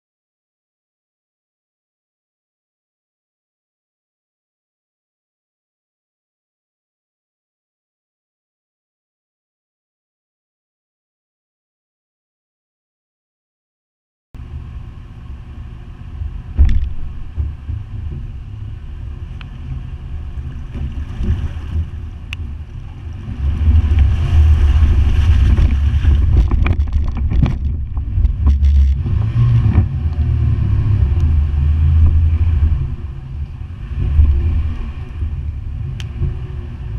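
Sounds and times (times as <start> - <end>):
water rushing and splashing: 14.4 - 36.9.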